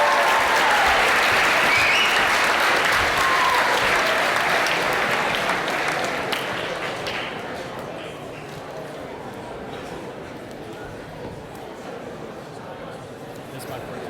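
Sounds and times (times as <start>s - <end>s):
short cheers: 0.0s - 4.9s
audience applauding: 0.0s - 7.9s.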